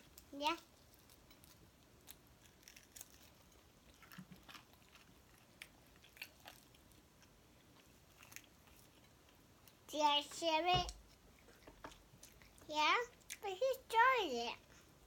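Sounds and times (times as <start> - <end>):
chewing and biting chicken: 2.0 - 9.4.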